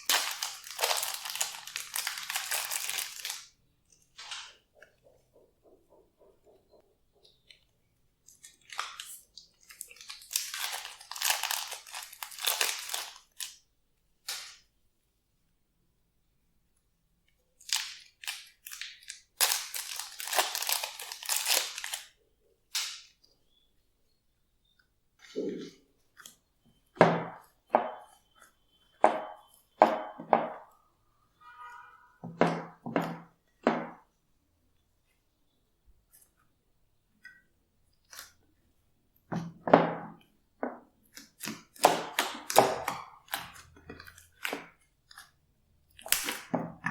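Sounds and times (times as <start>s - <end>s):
slime crackling and popping: 0.0s - 3.4s, 45.9s - 46.9s.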